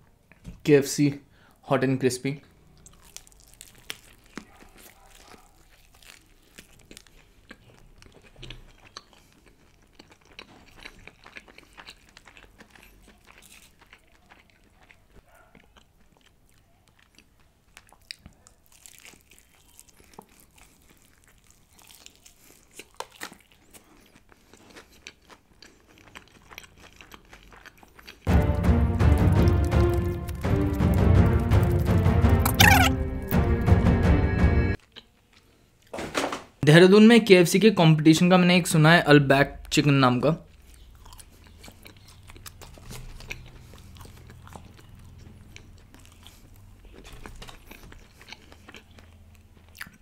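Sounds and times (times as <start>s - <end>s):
fried chicken crunching: 2.6s - 32.9s, 40.4s - 50.0s.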